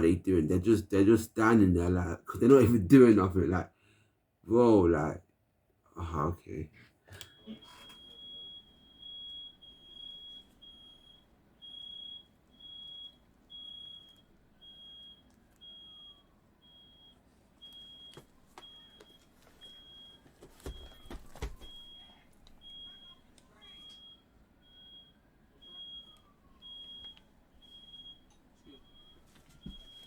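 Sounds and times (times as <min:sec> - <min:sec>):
smoke alarm beeping: 0:07.1 - 0:30.0.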